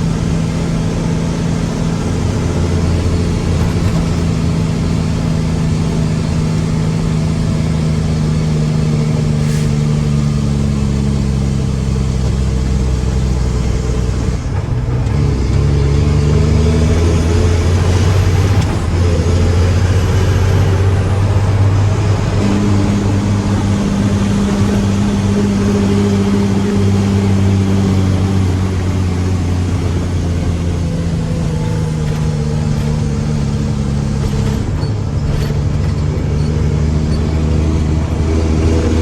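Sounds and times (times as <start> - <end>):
truck diesel engine running: 0.0 - 39.0.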